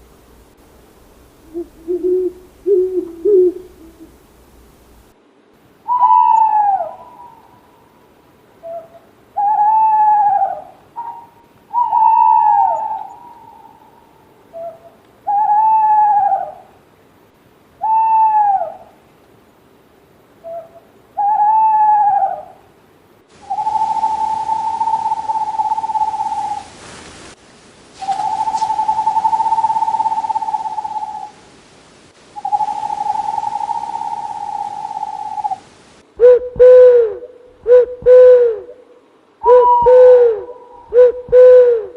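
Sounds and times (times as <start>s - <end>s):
owl hooting: 1.4s - 4.2s, 5.8s - 8.0s, 8.6s - 16.7s, 17.8s - 19.0s, 20.4s - 22.6s, 23.4s - 26.8s, 28.0s - 31.4s, 32.3s - 41.9s.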